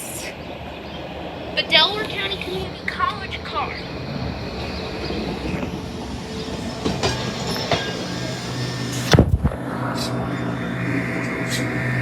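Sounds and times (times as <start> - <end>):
trolley motor hum: 1.6 - 12.0
loud low thump: 9.1 - 9.6.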